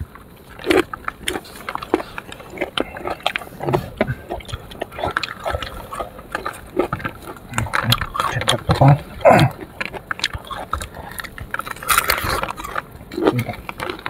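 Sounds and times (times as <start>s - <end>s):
lip smacks: 0.0s - 14.0s
wet crunchy bites: 0.0s - 14.0s.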